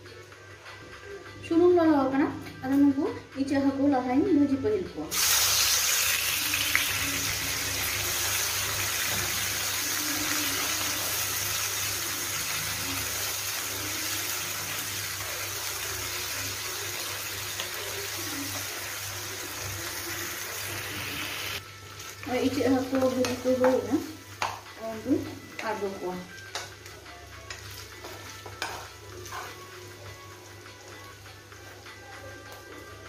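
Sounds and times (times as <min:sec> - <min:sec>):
shrimp sizzling in hot oil: 0:05.1 - 0:25.0.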